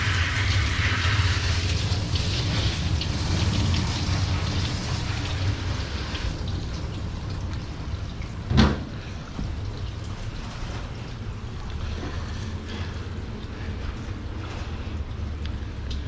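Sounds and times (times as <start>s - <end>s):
water spraying from hose: 0.0s - 8.1s
steady low hum: 0.0s - 16.0s.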